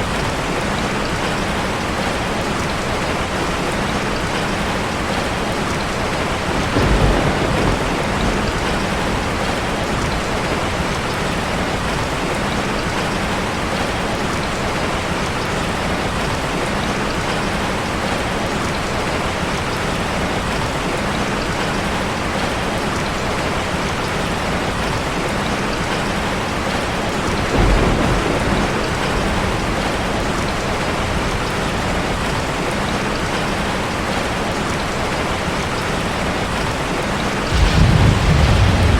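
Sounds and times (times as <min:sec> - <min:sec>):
low rumbles: 0:37.4 - 0:38.9.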